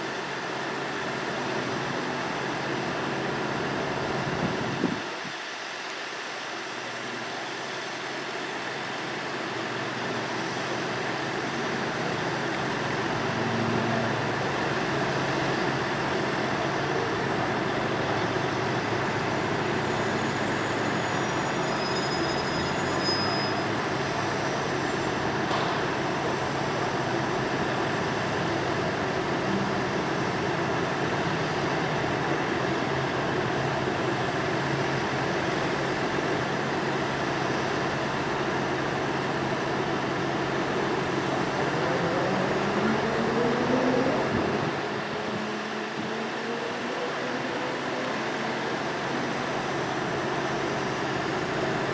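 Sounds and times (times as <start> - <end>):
train rumbling: 0.0 - 51.9.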